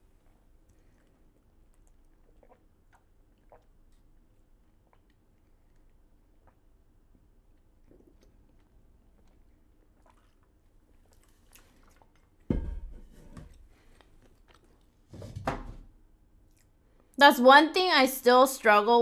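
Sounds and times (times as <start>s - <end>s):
chewing fried food: 0.2s - 12.5s, 13.8s - 15.1s.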